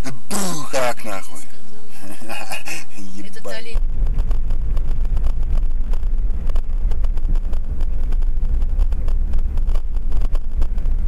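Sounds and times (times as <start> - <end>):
car road and engine rumble: 0.0 - 11.0
small ticks and rattles: 3.8 - 11.0.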